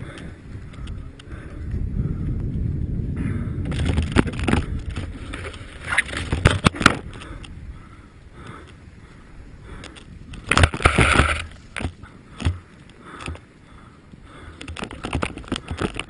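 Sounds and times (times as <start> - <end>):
snowmobile engine rumble: 0.0 - 16.0.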